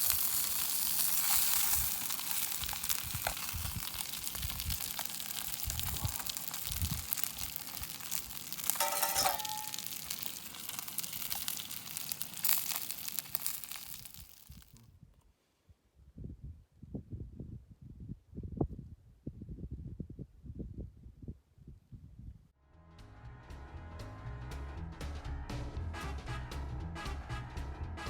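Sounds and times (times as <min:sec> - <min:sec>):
sausages sizzling in a pan: 0:00.0 - 0:14.8.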